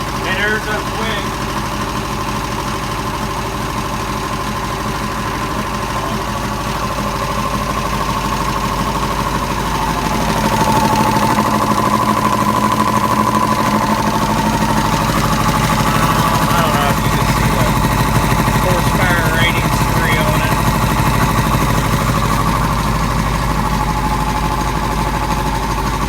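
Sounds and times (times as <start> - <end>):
air compressor pumping: 0.0 - 26.0.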